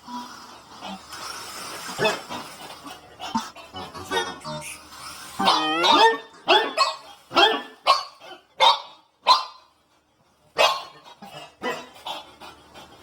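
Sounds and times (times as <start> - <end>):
dog barking: 5.4 - 9.7, 10.6 - 11.0, 11.6 - 11.9.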